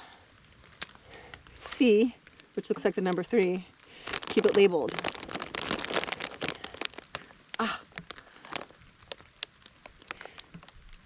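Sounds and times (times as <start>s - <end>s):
plastic bag crinkling: 2.4s - 11.0s.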